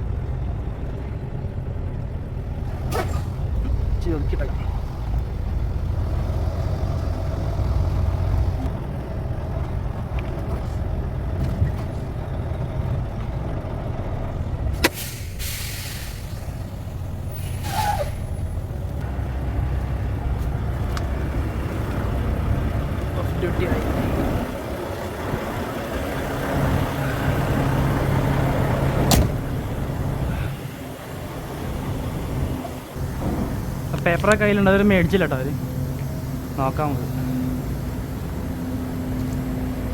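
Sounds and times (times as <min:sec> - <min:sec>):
diesel truck engine running: 0:00.0 - 0:39.9
air brake click and hiss: 0:14.8 - 0:16.7, 0:17.4 - 0:18.3.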